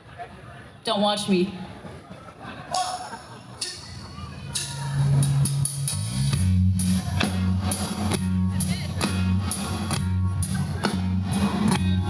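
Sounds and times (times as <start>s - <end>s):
drum kit beat: 3.6s - 12.0s
bass line: 3.9s - 12.0s
guitars: 4.4s - 12.0s.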